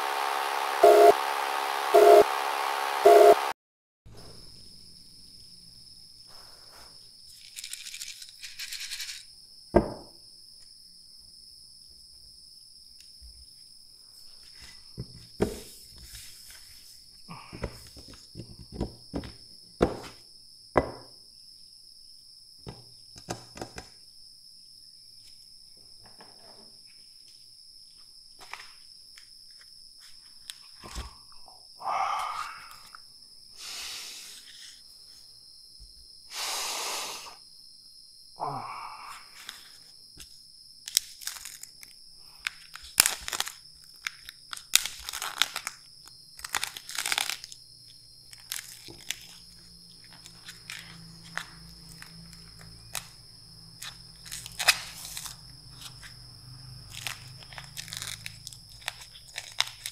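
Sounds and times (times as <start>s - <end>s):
crunching bell pepper: 40.9s - 47.6s, 48.3s - 53.1s, 53.8s - 56.2s, 56.8s - 59.9s.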